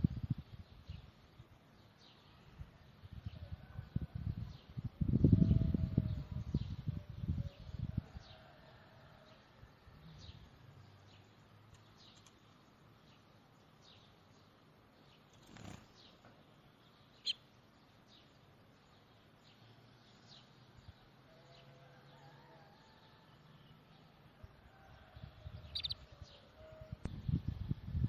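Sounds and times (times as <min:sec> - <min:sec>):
faint bird chirps: 0:17.0 - 0:17.6, 0:25.6 - 0:27.4.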